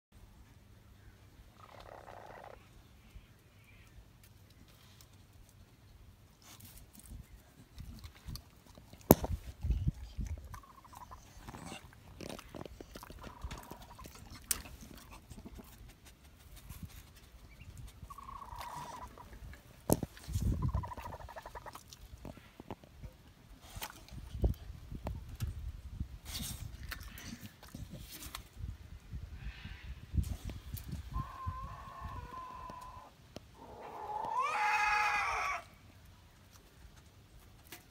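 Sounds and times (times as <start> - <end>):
hens clucking: 10.5 - 11.9, 13.1 - 15.8, 18.0 - 21.8
hen calling: 18.0 - 19.6, 20.4 - 21.8, 31.1 - 35.8.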